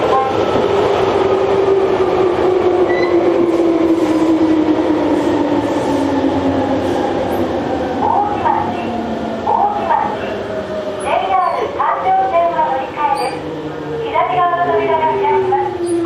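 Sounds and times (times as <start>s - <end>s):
electric train running rumble: 0.0s - 16.0s.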